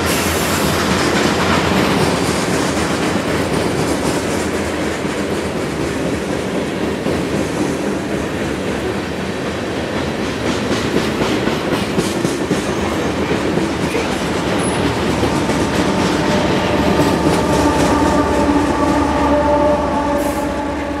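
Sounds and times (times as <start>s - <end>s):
train wheels clattering over rails: 0.0s - 21.0s
diesel locomotives humming: 12.4s - 21.0s.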